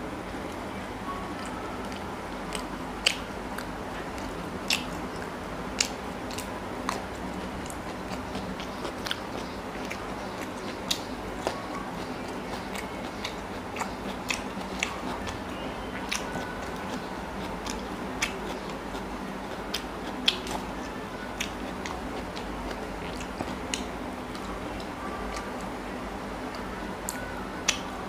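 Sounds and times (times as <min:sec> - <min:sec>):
steady low hum: 0:00.0 - 0:28.0
person chewing and biting: 0:05.8 - 0:20.8.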